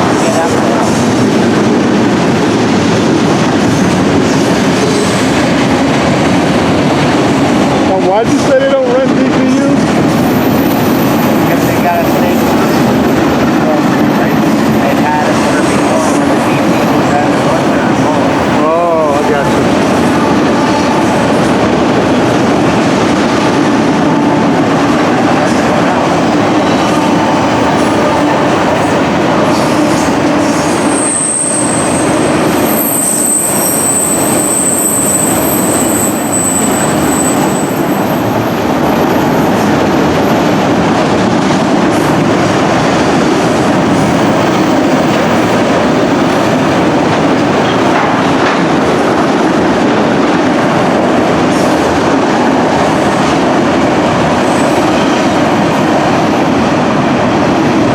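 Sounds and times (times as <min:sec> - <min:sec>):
freight train rumbling past: 0:00.0 - 0:57.9
high-pitched wheel squeal: 0:30.7 - 0:38.3.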